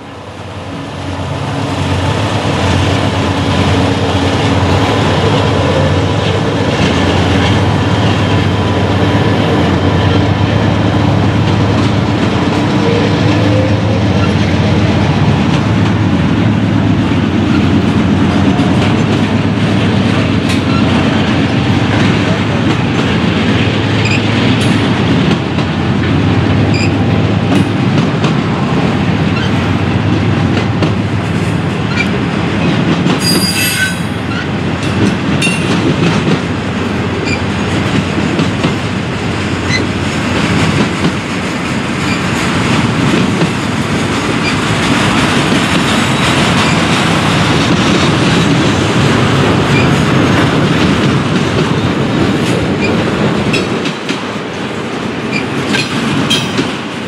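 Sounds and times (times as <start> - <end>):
freight train cars rattling past: 0.0 - 57.0
high metallic squeal: 33.2 - 34.5.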